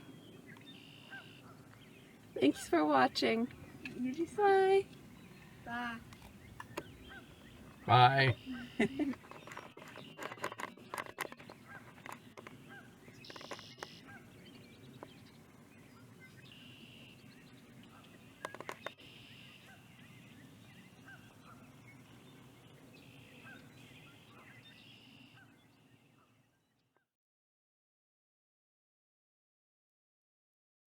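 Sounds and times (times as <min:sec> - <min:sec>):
birds calling: 0:00.0 - 0:26.4
faint steady background noise: 0:00.0 - 0:26.9
sharp clicks: 0:06.1 - 0:07.0, 0:08.8 - 0:12.6, 0:13.2 - 0:14.0, 0:18.4 - 0:19.0.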